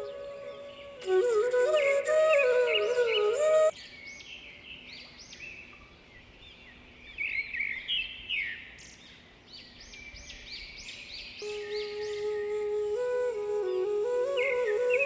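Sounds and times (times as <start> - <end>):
flute music: 0.0 - 3.8, 11.4 - 15.0.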